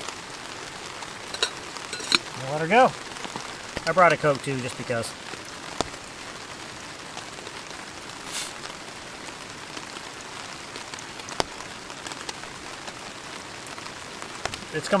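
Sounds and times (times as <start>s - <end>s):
heavy rain on a shelter: 0.0s - 15.0s
brief hiss: 8.3s - 8.7s.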